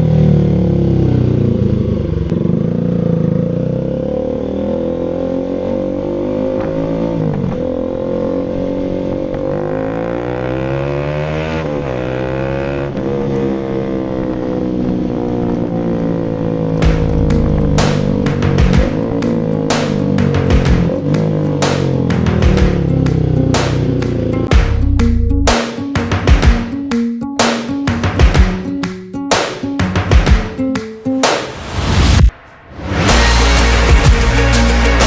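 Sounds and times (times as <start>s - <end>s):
motorcycle engine revving: 0.0s - 27.2s.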